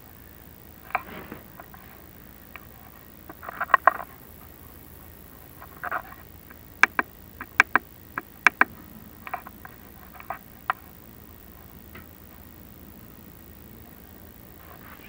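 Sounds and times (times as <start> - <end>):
inspection gear clicks and taps: 5.9 - 10.8.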